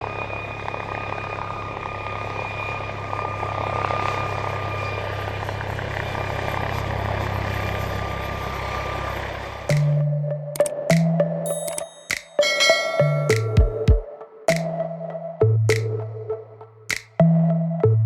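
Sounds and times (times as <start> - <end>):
helicopter running: 0.0 - 11.2.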